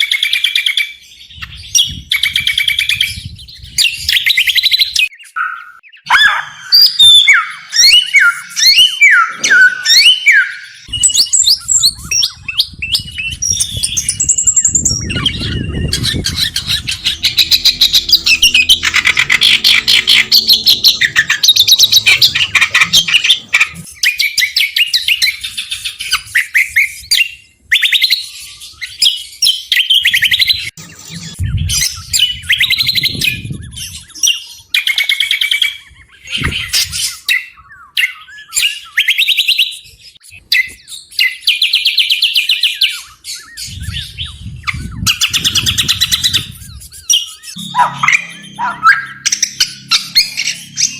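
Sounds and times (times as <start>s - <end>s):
songbird chattering trills: 1.4s - 26.2s, 41.2s - 50.9s.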